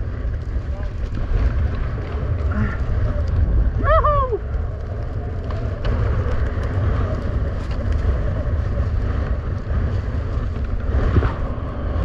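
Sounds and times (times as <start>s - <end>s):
wind buffeting microphone: 0.0s - 12.0s
person shouting: 3.8s - 4.4s.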